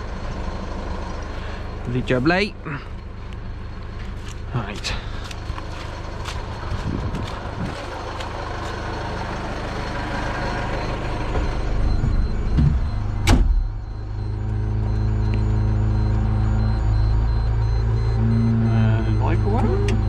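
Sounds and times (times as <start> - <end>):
vehicle engine droning: 0.0 - 20.0
sharp clunk: 11.3 - 13.8.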